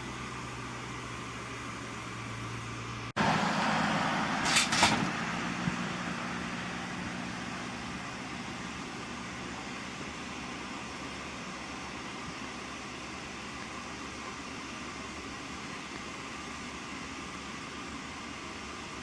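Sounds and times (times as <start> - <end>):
large truck engine running: 0.0 - 19.0
short sharp hisses: 4.4 - 5.1.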